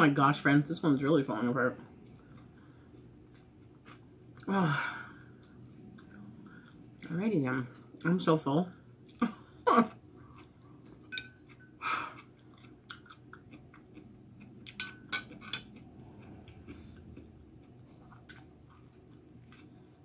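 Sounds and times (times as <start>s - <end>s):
chewing sushi: 2.0s - 4.5s, 10.0s - 20.0s.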